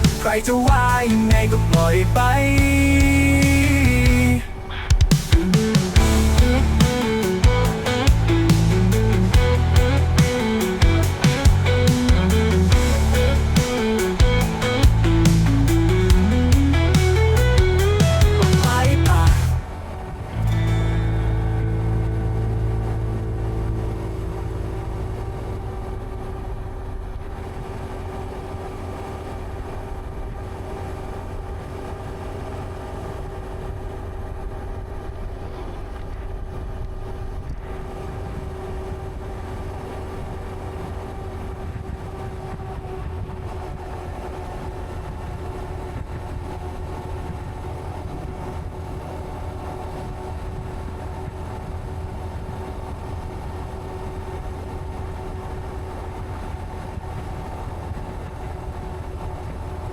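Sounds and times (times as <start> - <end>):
motorcycle engine running: 5.0 - 19.6.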